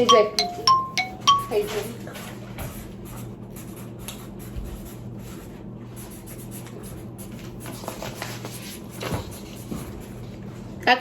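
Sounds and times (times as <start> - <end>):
low electrical hum: 0.0 - 11.0
pen scratching on paper: 3.1 - 7.4.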